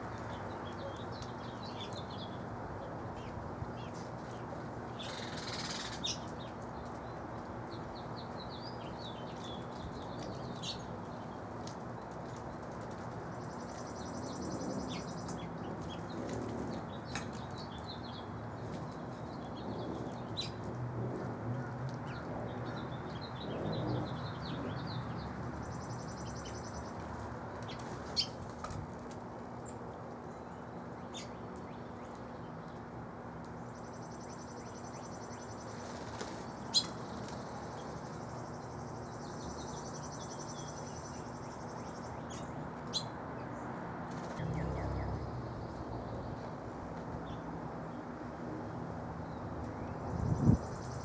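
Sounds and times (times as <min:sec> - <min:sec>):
songbirds chirping: 0:00.0 - 0:51.0
steady low rumble: 0:44.4 - 0:47.2.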